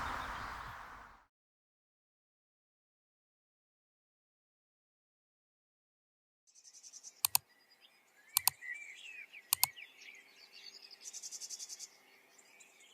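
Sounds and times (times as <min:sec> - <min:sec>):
birdsong with trills: 0:00.0 - 0:01.2, 0:06.5 - 0:12.9.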